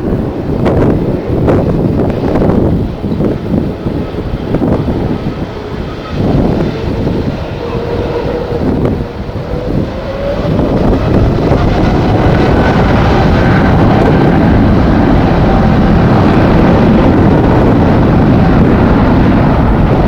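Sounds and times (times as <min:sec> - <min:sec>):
jet engines running with whine: 0:00.0 - 0:20.0
wind buffeting microphone: 0:00.0 - 0:20.0.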